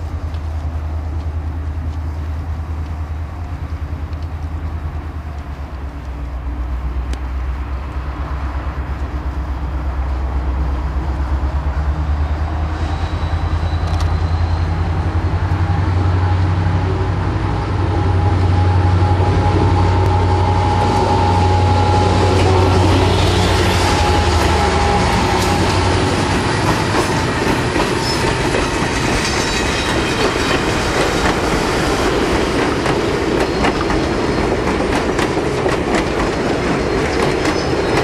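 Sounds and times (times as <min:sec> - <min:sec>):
diesel locomotive engine running: 0:00.0 - 0:38.0.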